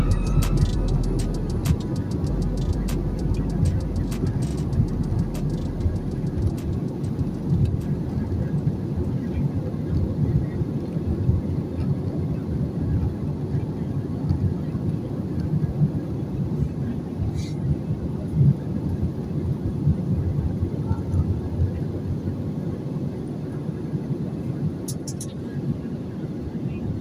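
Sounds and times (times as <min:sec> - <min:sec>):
rushing air: 0:00.0 - 0:10.6, 0:16.4 - 0:21.0
airliner engines rumbling: 0:00.0 - 0:27.0.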